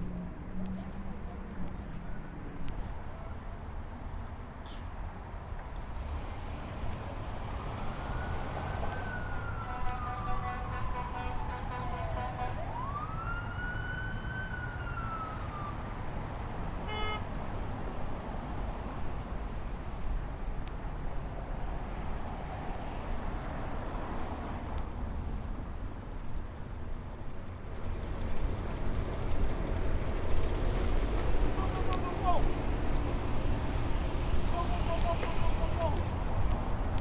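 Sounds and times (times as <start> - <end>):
street traffic rumble: 0.0 - 37.0
emergency siren wailing: 7.4 - 16.3.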